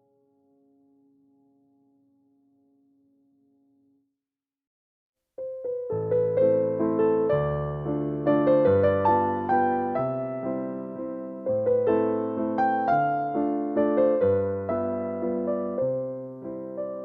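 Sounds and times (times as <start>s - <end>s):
gentle piano music: 5.4s - 17.0s.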